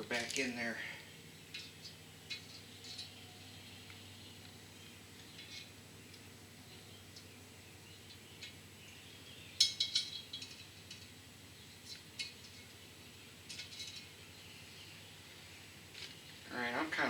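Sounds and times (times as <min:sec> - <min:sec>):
small metal parts clicking: 0:01.5 - 0:03.2, 0:09.6 - 0:11.1, 0:11.8 - 0:12.7, 0:13.5 - 0:14.1.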